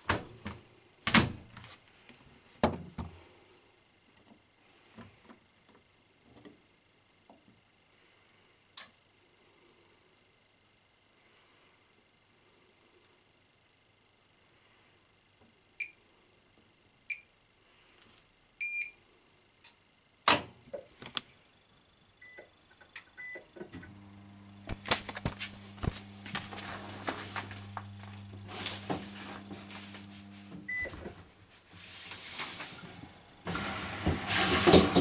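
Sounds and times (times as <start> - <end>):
washing machine hum: 0.0 - 1.6, 23.2 - 35.0.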